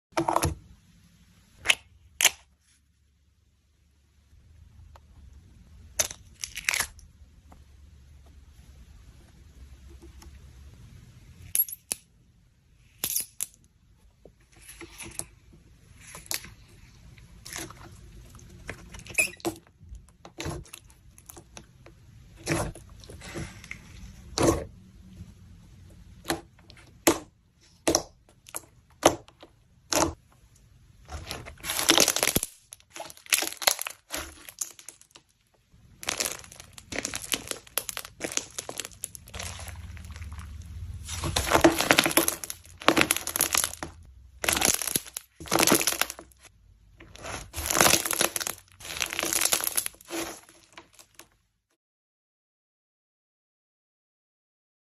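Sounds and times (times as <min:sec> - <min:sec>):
dense crinkling: 0:30.0 - 0:51.4
sharp crackles and crunches: 0:31.0 - 0:51.4.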